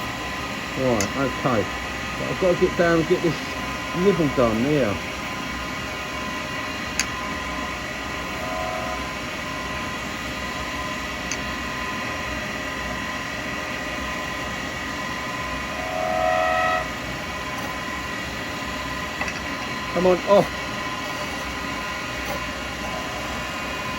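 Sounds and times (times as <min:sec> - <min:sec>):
cutter whining on acrylic: 0:00.0 - 0:23.9
wood lathe humming: 0:00.0 - 0:23.9.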